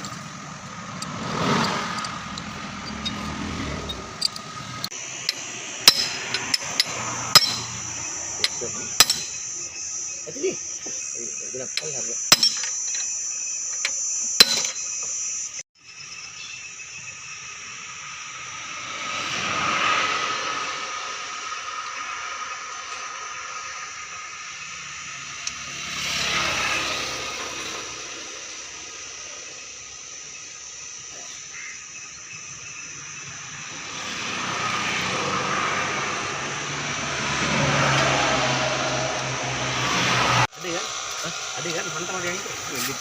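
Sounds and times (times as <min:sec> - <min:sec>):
motor vehicle passing: 0:00.0 - 0:09.3, 0:17.7 - 0:29.7, 0:33.1 - 0:43.0
steady high hiss: 0:39.8 - 0:43.0.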